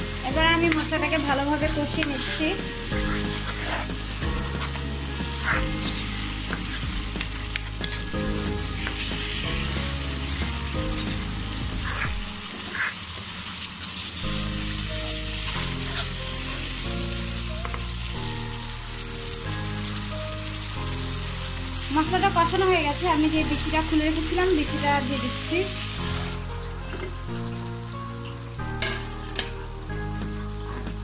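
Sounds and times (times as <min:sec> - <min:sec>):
paste sizzling in oil: 0:00.0 - 0:30.0
background music low notes: 0:00.0 - 0:31.0
spatula scraping pan: 0:01.8 - 0:13.0, 0:15.4 - 0:16.8.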